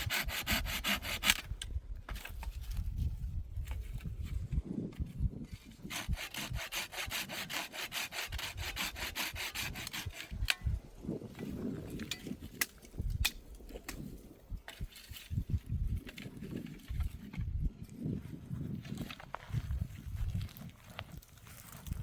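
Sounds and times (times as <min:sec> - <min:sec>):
hand saw cutting wood: 0:00.0 - 0:01.5, 0:05.7 - 0:10.7.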